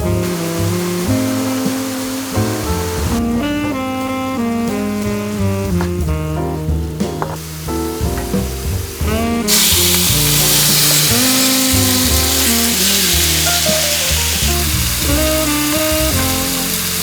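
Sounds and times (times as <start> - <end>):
background music: 0.0 - 17.0
food sizzling in a hot pan: 9.5 - 17.0.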